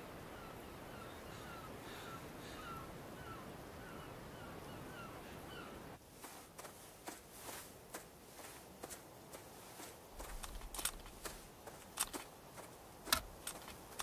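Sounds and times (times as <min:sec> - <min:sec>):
birds chirping: 0:00.0 - 0:06.0
outdoor hiss: 0:00.0 - 0:14.0
faint clicks and ticks: 0:10.2 - 0:14.0.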